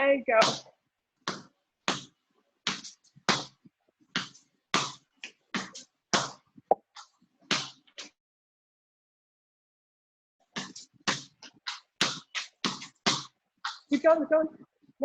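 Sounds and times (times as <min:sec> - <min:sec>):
basketball bouncing on floor: 0:01.3 - 0:02.1, 0:02.7 - 0:05.0.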